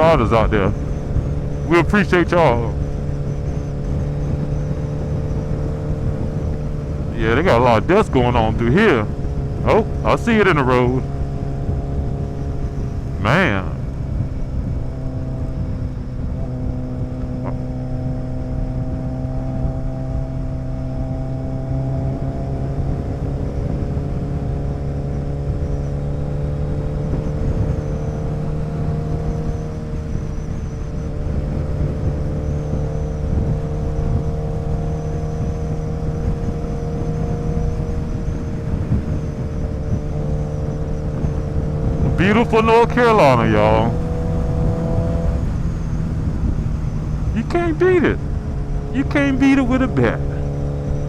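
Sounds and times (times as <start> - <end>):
motorcycle engine cruising: 0.0 - 51.0
wind rumble on microphone: 2.6 - 7.5, 13.8 - 42.2, 43.9 - 47.4.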